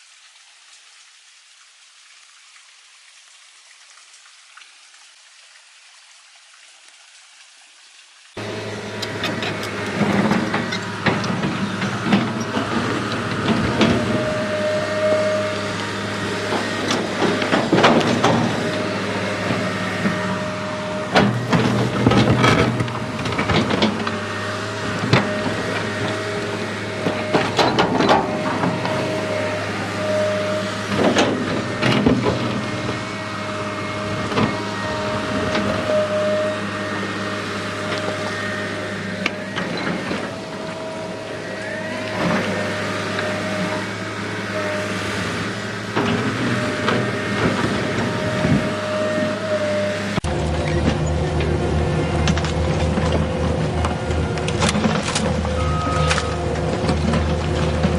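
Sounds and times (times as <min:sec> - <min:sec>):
toy electric motors whining: 0:08.4 - 0:51.4.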